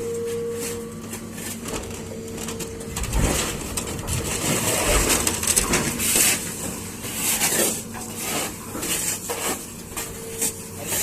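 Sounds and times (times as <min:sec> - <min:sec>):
excavator engine running: 0:00.0 - 0:11.0
sheet metal scraping and screeching: 0:02.9 - 0:11.0.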